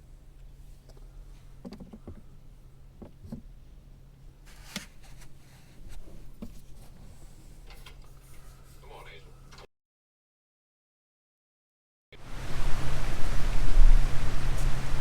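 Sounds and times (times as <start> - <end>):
low steady hum: 0.0 - 9.7
small knocks and clicks: 0.8 - 2.3.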